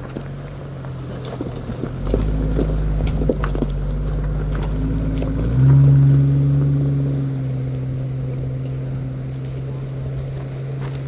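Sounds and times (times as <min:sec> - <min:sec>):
tyres clicking on rocky ground: 0:00.0 - 0:11.0
van engine running: 0:00.0 - 0:11.0.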